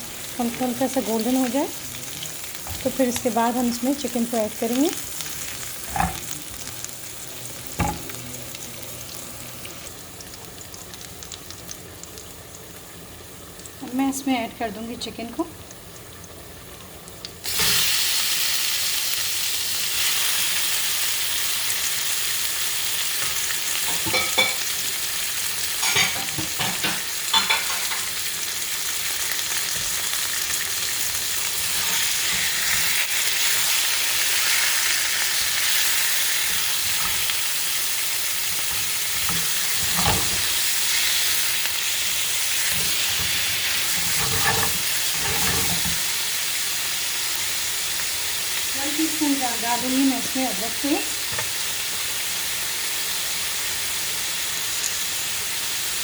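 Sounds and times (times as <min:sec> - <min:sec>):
chicken sizzling in frying pan: 0:00.0 - 0:56.0
utensil knocking and scraping pan: 0:42.7 - 0:46.1.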